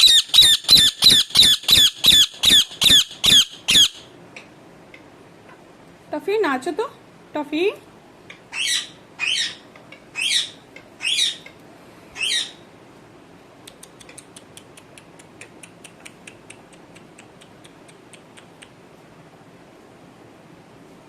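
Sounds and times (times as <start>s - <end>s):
parrot squawking: 0.0s - 4.1s, 8.5s - 11.5s, 12.2s - 12.6s.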